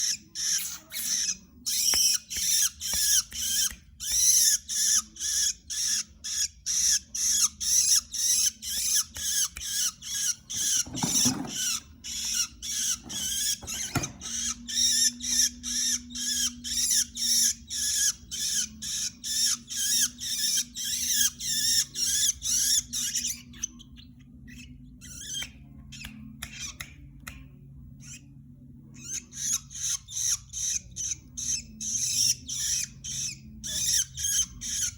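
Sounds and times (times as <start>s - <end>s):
bird chattering song: 0.0s - 27.1s, 28.9s - 34.9s.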